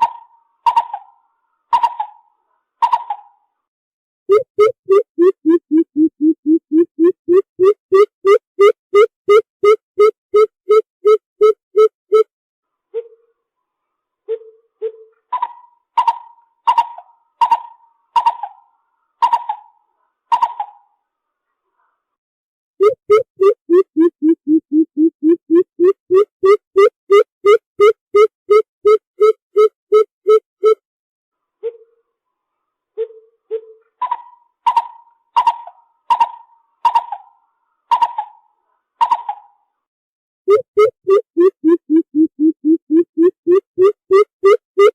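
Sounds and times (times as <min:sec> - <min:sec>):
bird calling hollow notes: 0:04.3 - 0:12.3, 0:22.8 - 0:30.8, 0:40.5 - 0:44.9.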